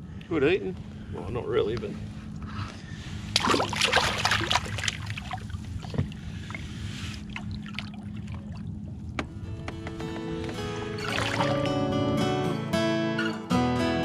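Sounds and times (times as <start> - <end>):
low steady hum: 0.0 - 13.7
water splashing around kayak: 3.2 - 9.2, 10.9 - 11.8.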